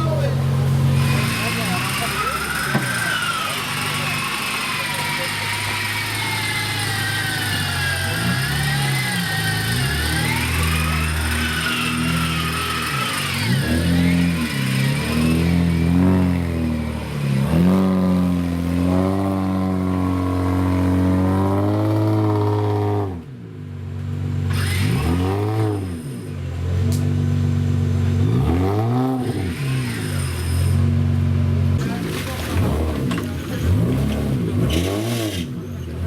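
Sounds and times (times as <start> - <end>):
off-road engine revving: 0.0 - 36.0.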